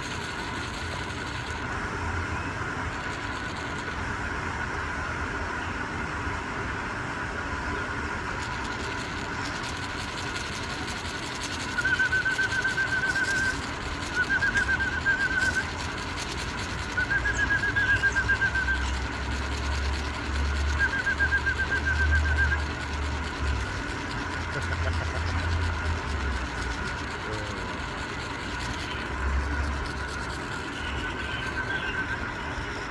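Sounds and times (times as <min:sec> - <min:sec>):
bird trilling: 0:11.6 - 0:15.9, 0:16.9 - 0:19.1, 0:20.6 - 0:23.7, 0:28.8 - 0:32.9.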